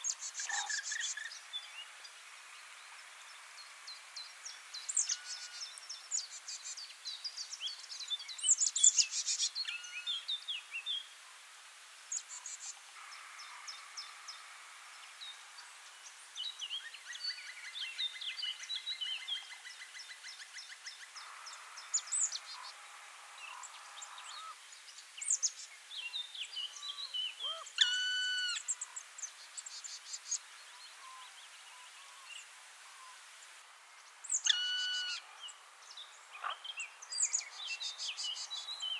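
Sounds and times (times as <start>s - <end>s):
birds chirping and trilling: 0.0s - 11.1s, 12.1s - 38.9s
loud multi-note bird call: 27.4s - 28.7s, 34.4s - 35.2s.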